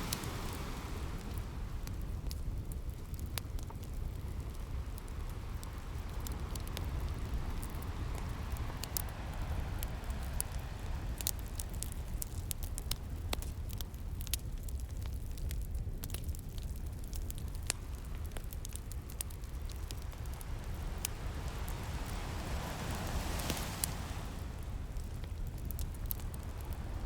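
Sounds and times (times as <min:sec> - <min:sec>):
sea waves rushing: 0:00.0 - 0:02.2, 0:05.4 - 0:12.0, 0:19.2 - 0:25.4
fire popping: 0:00.0 - 0:27.0
wood fire crackling: 0:00.0 - 0:27.0.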